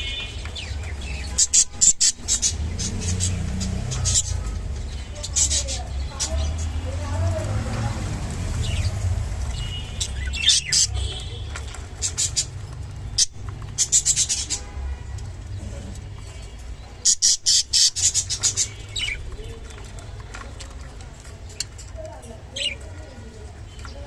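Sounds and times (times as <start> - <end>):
budgerigar scratchy chirps: 17.0 - 19.2.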